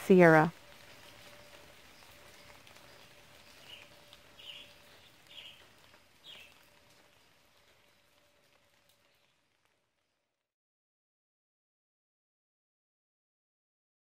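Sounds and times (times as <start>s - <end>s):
faint steady hum: 0.0s - 9.3s
faint bird chirps: 0.8s - 6.7s.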